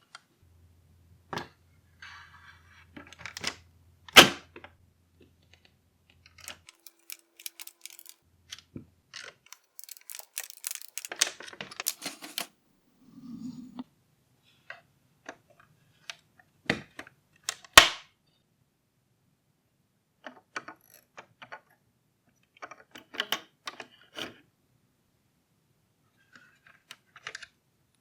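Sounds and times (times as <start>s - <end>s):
plastic parts clicking: 6.5s - 8.2s, 9.5s - 12.5s.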